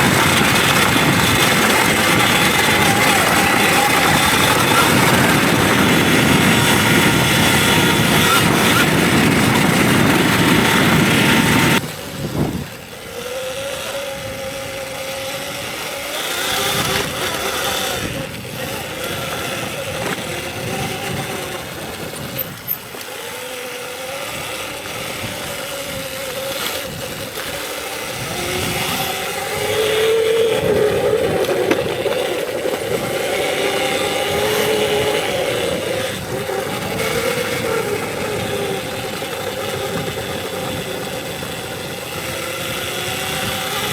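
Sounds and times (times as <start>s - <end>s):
loud rush of noise: 0.0s - 12.4s
electric motor whining: 0.0s - 43.9s
wind and tyre noise: 0.0s - 43.9s.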